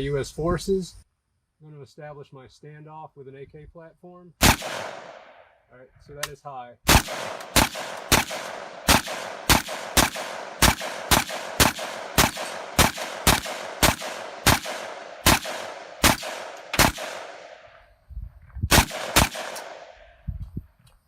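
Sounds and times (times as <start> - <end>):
rifle shots: 4.4 - 5.4, 6.9 - 17.8, 18.7 - 20.2.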